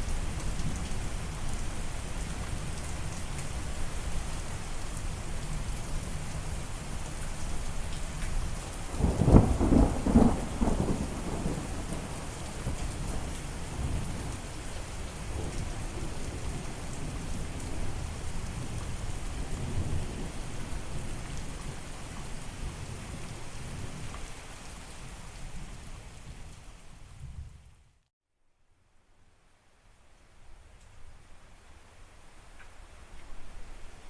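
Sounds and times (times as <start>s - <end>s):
steady rain hissing: 0.0s - 28.0s, 28.6s - 34.0s
low rumble of thunder: 8.1s - 27.8s.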